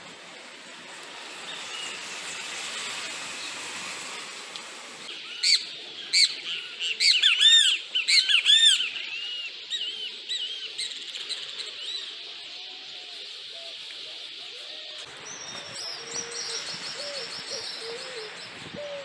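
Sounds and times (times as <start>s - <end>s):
steady high hiss: 0.0s - 19.0s
birds calling: 0.7s - 19.0s.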